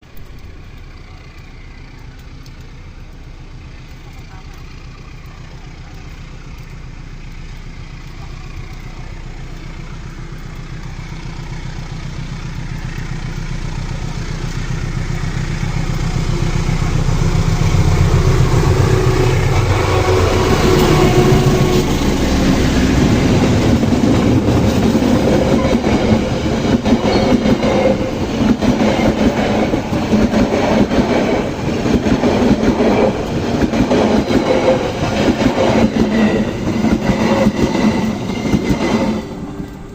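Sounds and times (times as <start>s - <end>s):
locomotive engine drone: 0.0s - 39.9s
train wheels clattering on rail: 0.0s - 39.9s.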